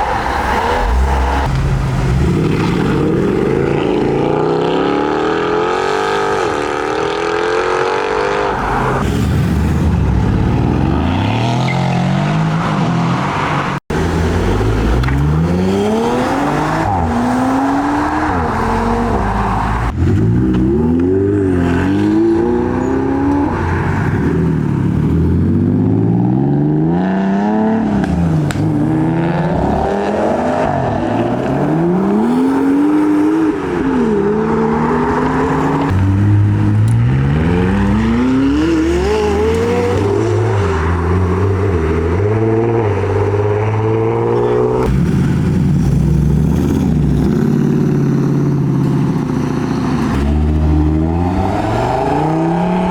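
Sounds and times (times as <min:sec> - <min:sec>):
car engines accelerating hard: 0:00.0 - 0:52.9.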